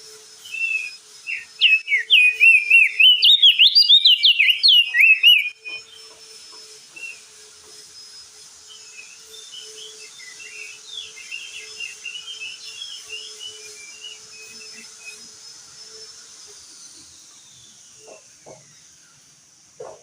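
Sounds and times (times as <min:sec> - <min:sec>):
bird twittering song: 0:00.5 - 0:06.1, 0:08.7 - 0:14.9.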